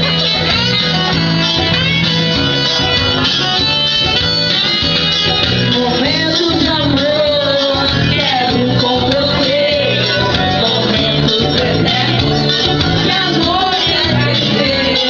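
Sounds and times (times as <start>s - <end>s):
guitar-led backing: 0.0s - 15.0s
person singing: 5.6s - 15.0s.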